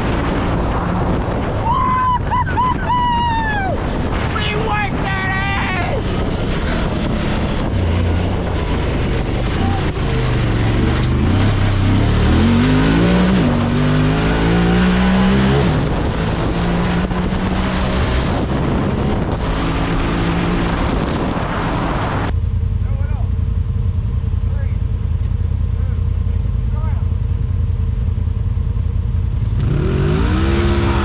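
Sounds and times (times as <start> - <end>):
utility vehicle engine revving: 0.0 - 4.3, 5.7 - 22.4, 28.6 - 31.0
steady rushing noise: 0.0 - 23.6.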